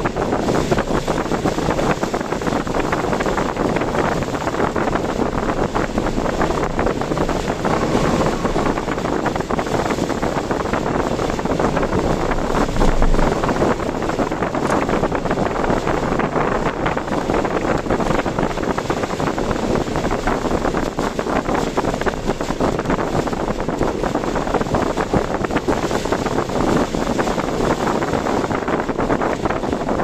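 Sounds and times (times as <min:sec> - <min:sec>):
strong wind buffeting microphone: 0:00.0 - 0:30.0.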